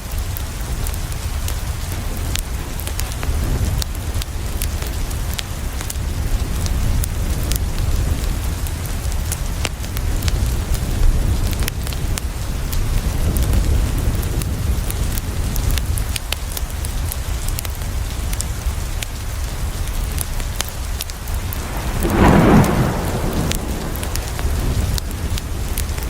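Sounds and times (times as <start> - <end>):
steady rain: 0.0 - 26.0
wood fire crackling: 0.0 - 26.0
low rumble: 21.2 - 26.0
loud rushing burst: 21.3 - 25.7.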